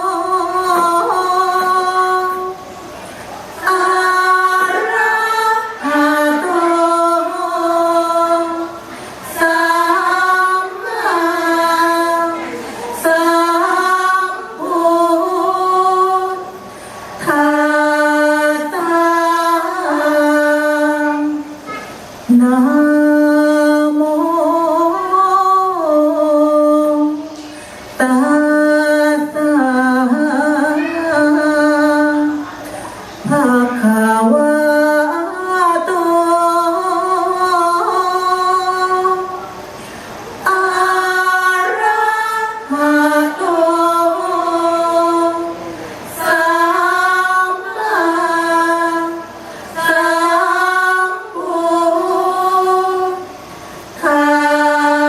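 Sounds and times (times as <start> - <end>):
women chanting together: 3.6 - 16.6, 40.4 - 53.3, 53.9 - 55.0.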